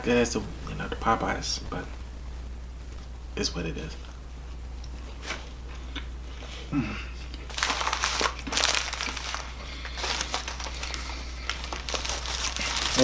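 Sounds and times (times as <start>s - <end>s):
steady low hum: 0.0s - 13.0s
paper packaging crinkling: 7.5s - 13.0s.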